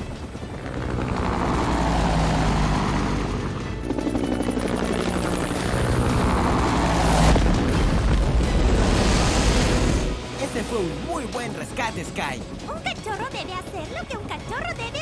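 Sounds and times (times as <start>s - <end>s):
cartoon helicopter rotor chopping: 0.0s - 8.1s, 12.0s - 15.0s
background music: 0.0s - 15.0s.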